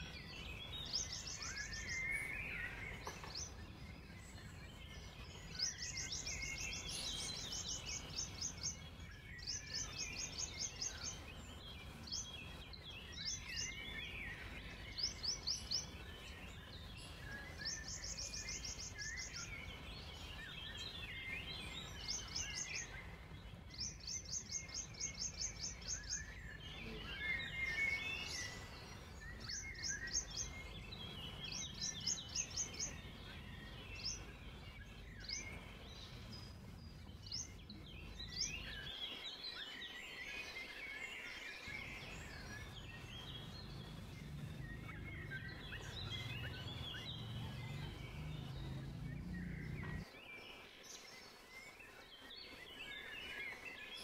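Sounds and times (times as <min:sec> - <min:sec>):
birds chirping and warbling: 0:00.0 - 0:54.0
steady low rumble: 0:42.3 - 0:50.1.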